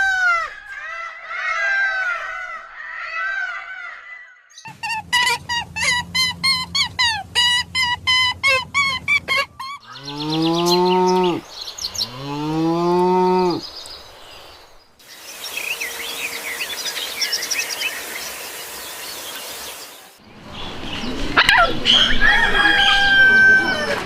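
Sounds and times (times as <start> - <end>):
birds chirping: 0.5 - 23.4
cow mooing: 8.5 - 13.6
steady high hiss: 11.4 - 20.2.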